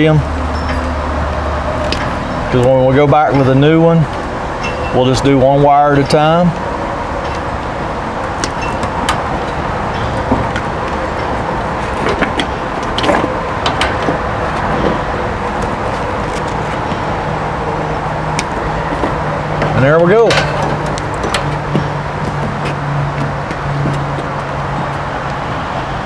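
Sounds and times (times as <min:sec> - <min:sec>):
steady background noise: 0:00.0 - 0:26.0
wire cutters snipping: 0:18.3 - 0:24.4.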